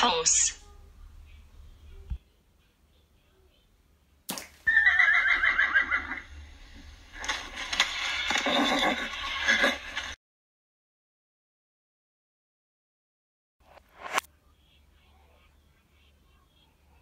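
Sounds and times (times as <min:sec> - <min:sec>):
horse whinnying: 0:04.6 - 0:06.3.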